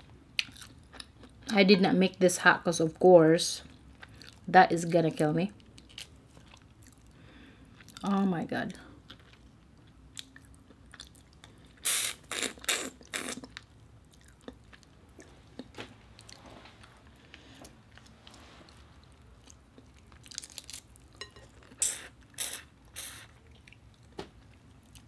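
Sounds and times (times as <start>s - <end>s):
chewing shrimp: 5.6s - 8.1s, 9.0s - 25.0s
loud wet mouth smacks and sucks: 11.8s - 13.5s.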